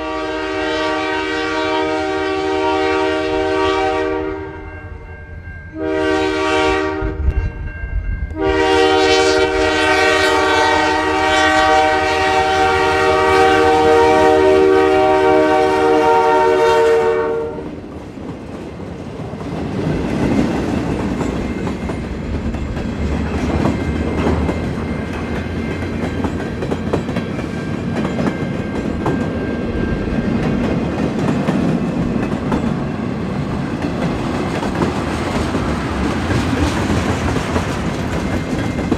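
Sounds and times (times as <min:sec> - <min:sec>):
locomotive air horn blasts: 0:00.0 - 0:04.7, 0:05.8 - 0:07.5, 0:08.3 - 0:17.8
train wheels clicking over rail joints: 0:17.8 - 0:38.9.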